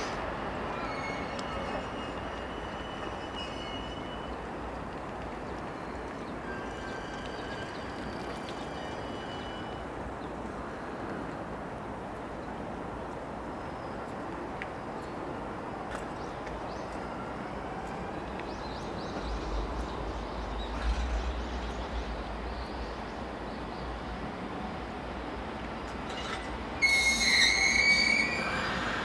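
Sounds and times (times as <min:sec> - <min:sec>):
freight train rumbling past: 0:00.0 - 0:29.0
wheels clicking over rail joints: 0:04.4 - 0:09.3.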